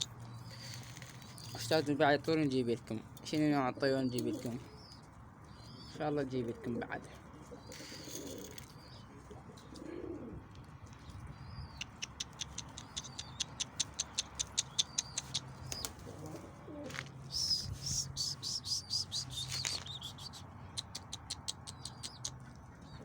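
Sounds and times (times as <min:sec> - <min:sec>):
pigeons cooing: 0:00.0 - 0:01.8, 0:03.7 - 0:10.7, 0:11.4 - 0:23.0
high chirping bird calls: 0:11.0 - 0:23.0
sharp ticks: 0:11.7 - 0:16.0, 0:18.2 - 0:22.6.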